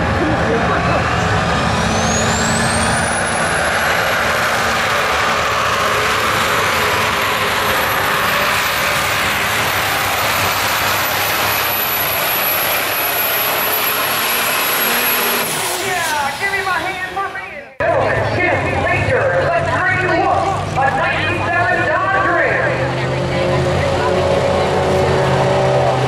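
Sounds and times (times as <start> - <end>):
high whine: 0.0 - 18.8
truck engine at full throttle: 0.0 - 26.0.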